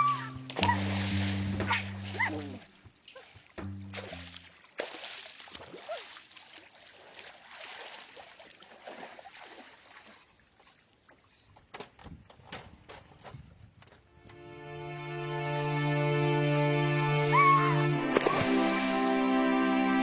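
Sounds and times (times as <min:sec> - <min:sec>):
held musical tone: 0:00.0 - 0:02.6, 0:14.2 - 0:20.0
water splashing and trickling: 0:00.0 - 0:13.4, 0:17.2 - 0:19.4.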